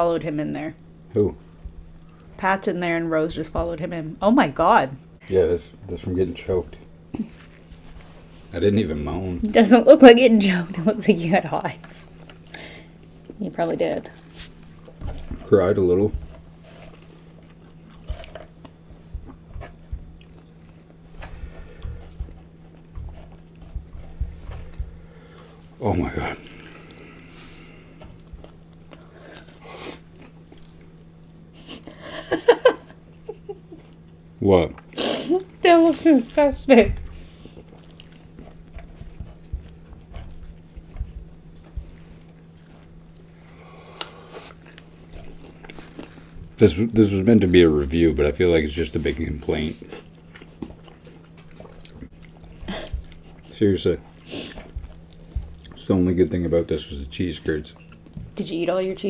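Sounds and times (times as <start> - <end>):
steady low hum: 0.0 - 59.0
person chewing and biting: 14.1 - 32.0, 36.9 - 46.6, 49.2 - 55.8, 57.6 - 58.3
low thumps: 21.3 - 25.1.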